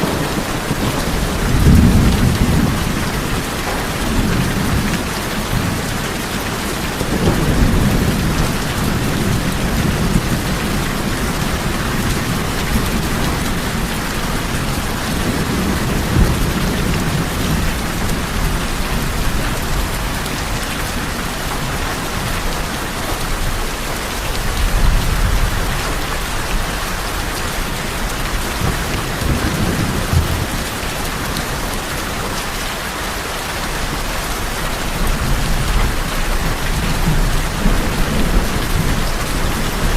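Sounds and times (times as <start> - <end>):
thunder rumbling: 0.0 - 32.6, 33.9 - 39.9
heavy rain on tin roofs: 0.0 - 39.9.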